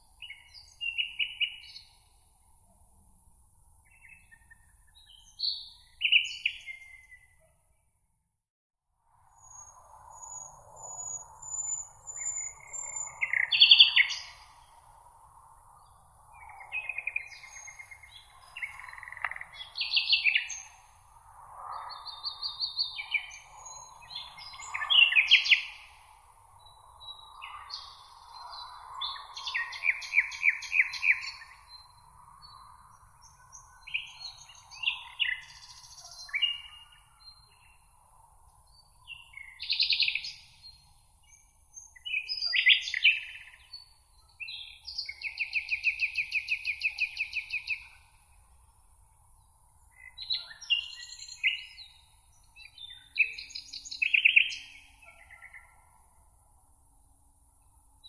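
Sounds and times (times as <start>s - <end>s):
songbirds singing: 0.0s - 7.9s, 9.4s - 58.0s.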